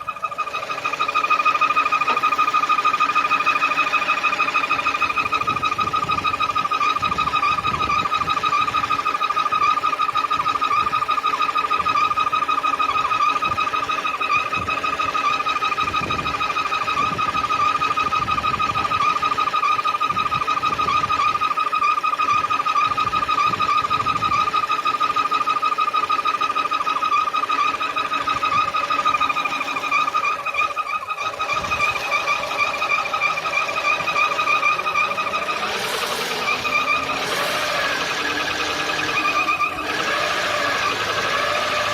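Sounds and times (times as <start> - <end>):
car engine idling: 0.0 - 41.9
high-pitched whistle: 0.0 - 41.9.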